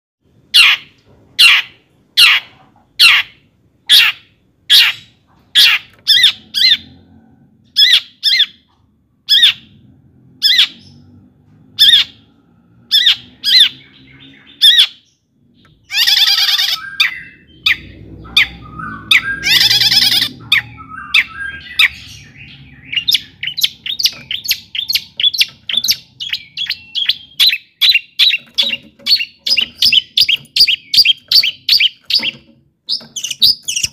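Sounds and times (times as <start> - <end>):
shrike singing: 15.7 - 33.9.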